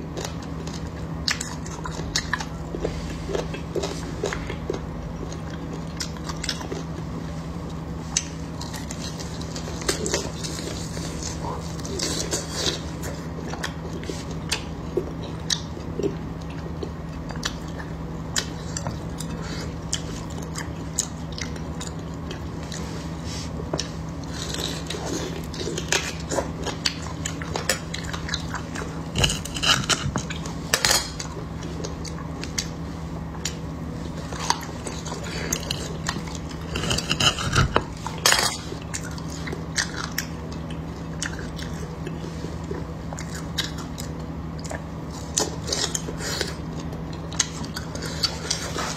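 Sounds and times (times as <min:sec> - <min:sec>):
close-up chewing and crunching: 0:00.0 - 0:48.9
steady low hum: 0:00.0 - 0:48.9.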